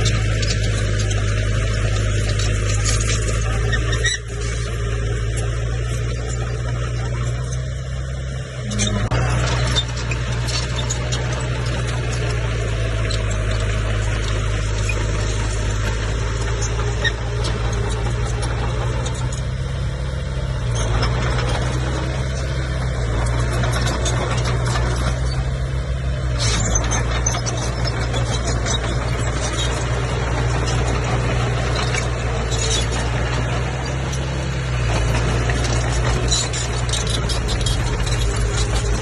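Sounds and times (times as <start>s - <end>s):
bulldozer diesel engine running: 0.0s - 39.0s
high squeaks and clinks: 8.6s - 13.7s, 26.4s - 34.4s, 35.0s - 39.0s.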